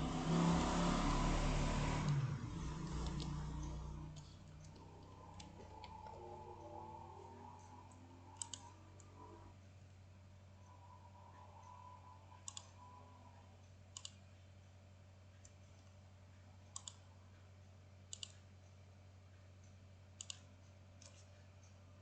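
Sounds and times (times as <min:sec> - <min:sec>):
faint low hum: 0:00.0 - 0:22.0
computer mouse clicks: 0:02.0 - 0:09.4, 0:10.7 - 0:14.2, 0:16.7 - 0:17.0, 0:18.1 - 0:18.5, 0:20.2 - 0:21.8.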